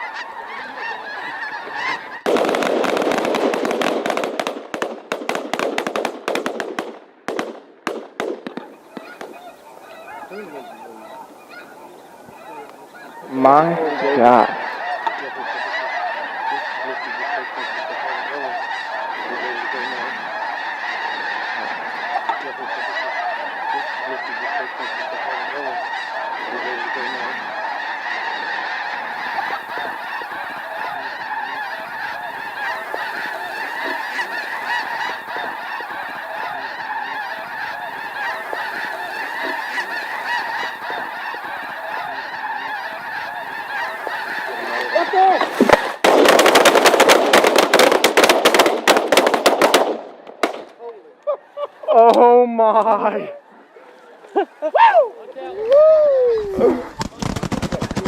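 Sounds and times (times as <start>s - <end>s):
flock of geese calling: 0.0s - 58.0s.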